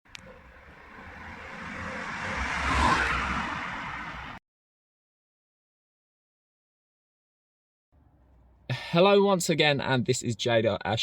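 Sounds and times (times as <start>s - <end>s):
road vehicle approaching: 0.1s - 4.4s.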